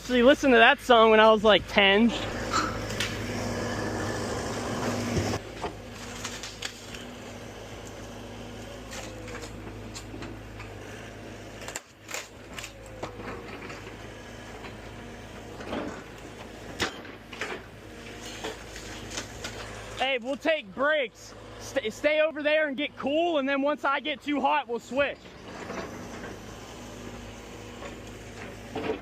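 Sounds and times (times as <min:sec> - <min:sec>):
demolition machinery running: 0:00.0 - 0:29.0.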